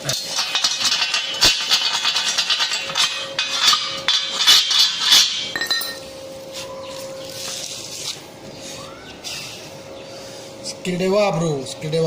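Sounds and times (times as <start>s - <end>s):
metal clinking on steel: 0.0s - 6.1s
faint steady hum: 0.0s - 12.0s.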